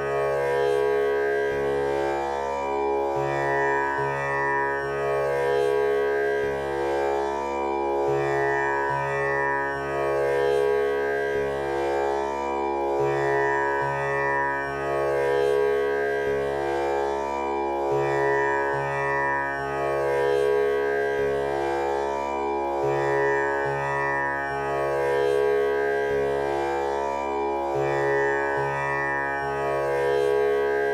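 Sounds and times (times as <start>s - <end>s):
tanpura drone: 0.0s - 30.9s.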